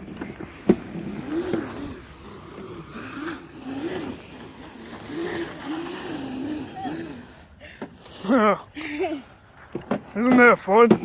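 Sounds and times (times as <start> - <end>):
small engine revving: 0.0 - 8.6.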